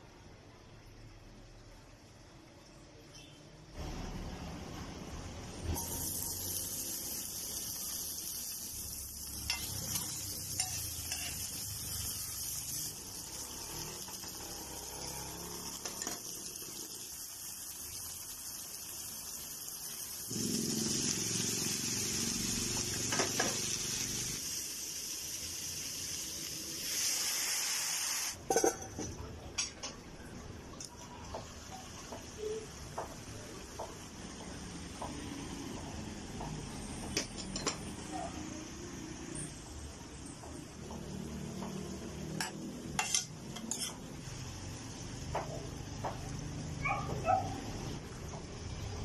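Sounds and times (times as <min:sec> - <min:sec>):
fish and garlic sizzling in oil: 0:05.7 - 0:28.6, 0:40.9 - 0:46.3
metal pan lid clattering: 0:28.5 - 0:29.0.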